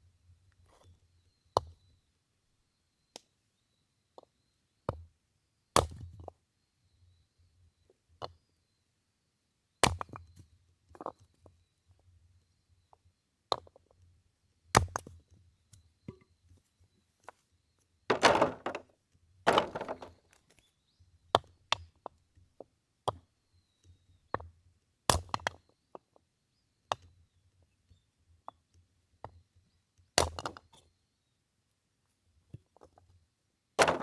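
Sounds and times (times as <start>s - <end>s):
axe chopping firewood: 18.1s - 18.8s, 19.5s - 20.1s, 33.8s - 34.0s.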